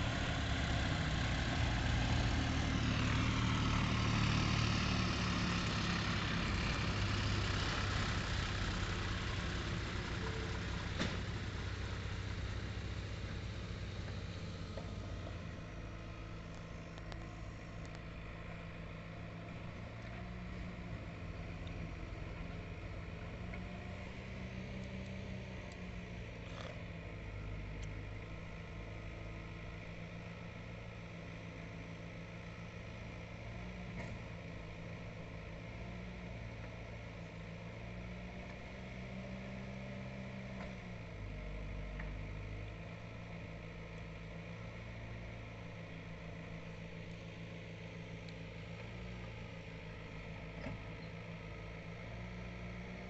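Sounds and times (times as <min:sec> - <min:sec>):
diesel engine revving: 0:00.0 - 0:31.5.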